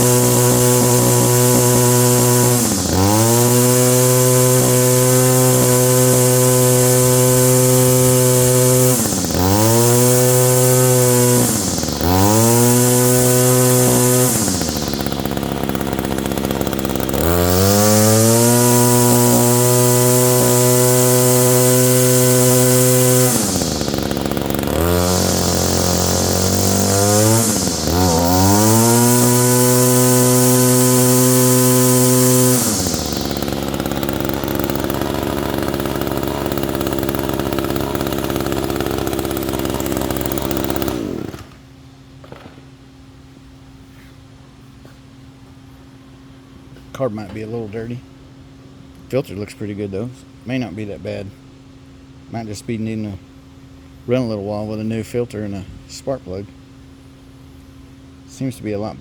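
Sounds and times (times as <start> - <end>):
string trimmer engine revving: 0.0 - 41.7.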